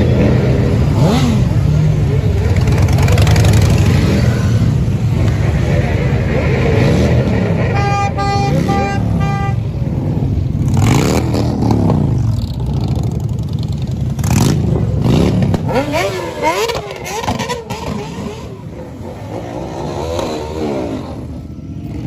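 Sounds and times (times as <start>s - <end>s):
motorcycle engines revving: 0.0s - 22.0s
vehicle horn beeping: 7.7s - 9.7s.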